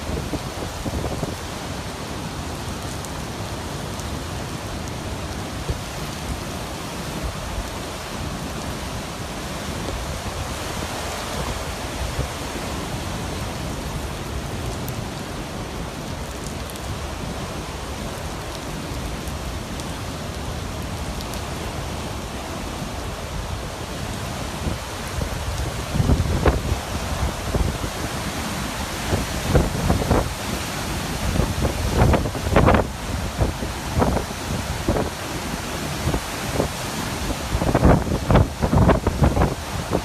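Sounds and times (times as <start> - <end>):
rushing wind and water: 0.0 - 40.0
wind buffeting microphone: 23.4 - 40.0.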